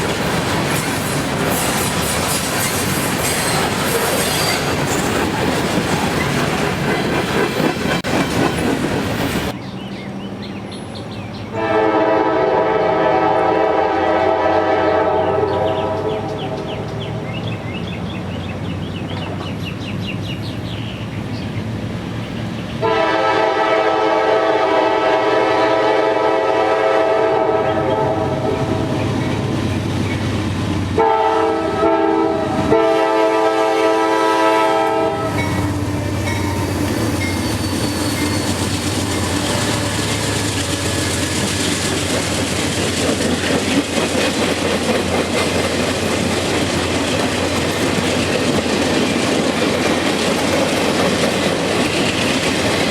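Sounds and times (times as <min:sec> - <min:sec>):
train cars rolling past: 0:00.0 - 0:52.9
locomotive air horn blasts: 0:11.5 - 0:16.9, 0:22.8 - 0:29.0, 0:31.0 - 0:36.8.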